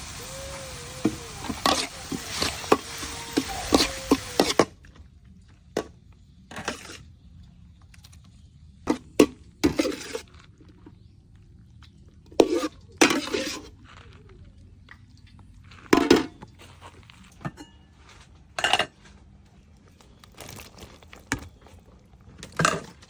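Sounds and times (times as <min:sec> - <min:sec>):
steady hiss: 0:00.0 - 0:04.5
utensils clattering against cookware: 0:18.6 - 0:19.0.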